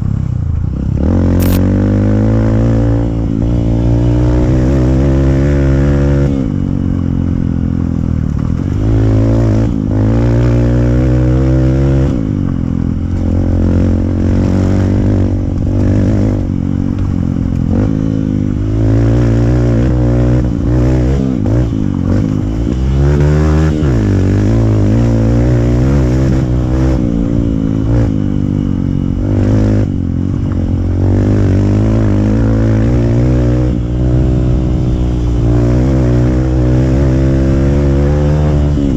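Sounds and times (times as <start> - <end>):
single-cylinder engine revving: 1.0 - 6.5, 17.6 - 38.9.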